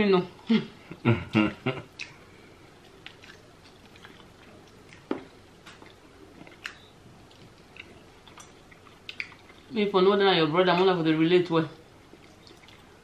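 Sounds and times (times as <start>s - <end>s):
chewing and mouth sounds: 1.9s - 2.2s, 2.8s - 9.8s, 12.1s - 13.0s.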